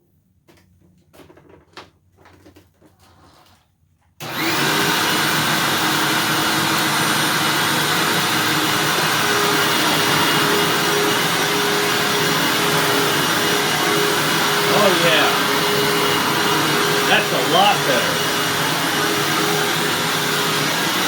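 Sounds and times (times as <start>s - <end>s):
vacuum cleaner running: 4.2s - 21.0s.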